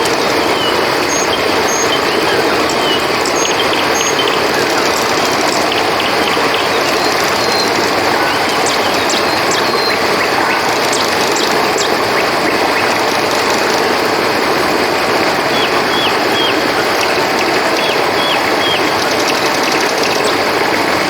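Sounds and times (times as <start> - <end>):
river flowing: 0.0 - 21.0
small creatures chirping: 0.4 - 14.0.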